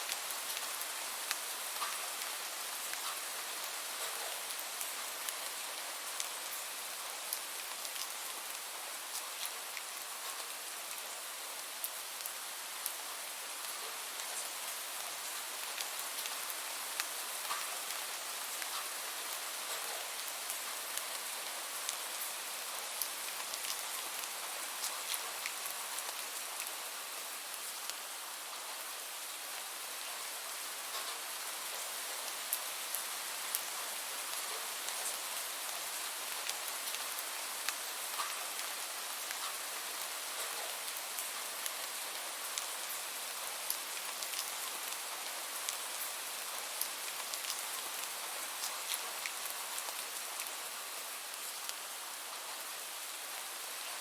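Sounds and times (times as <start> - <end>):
raindrops ticking on a surface: 0.0 - 54.0
steady rain hiss: 0.0 - 54.0.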